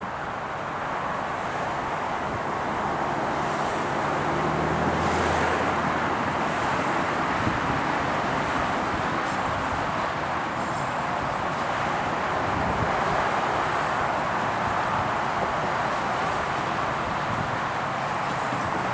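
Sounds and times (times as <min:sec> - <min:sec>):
train rushing rumble: 0:00.8 - 0:18.9.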